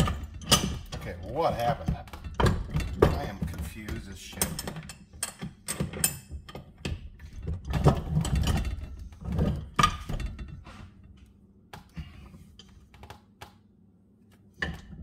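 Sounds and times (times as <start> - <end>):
bench vise knocking and clattering: 0.0 - 10.8.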